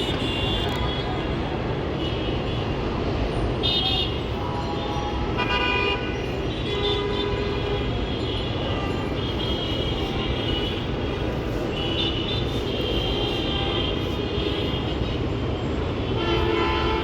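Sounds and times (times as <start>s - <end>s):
city road traffic: 0.0s - 17.0s
drawn-out vehicle horns: 16.2s - 17.0s.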